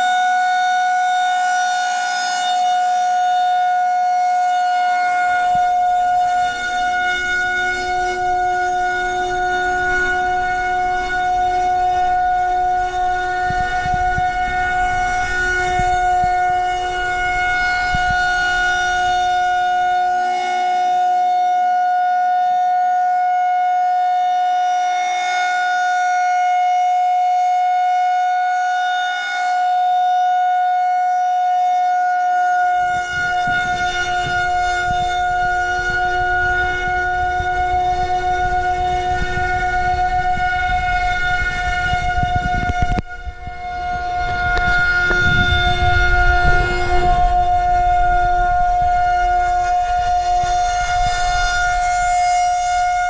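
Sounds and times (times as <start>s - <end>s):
warning siren steady tone: 0.0s - 53.0s
low rumble: 33.0s - 53.0s.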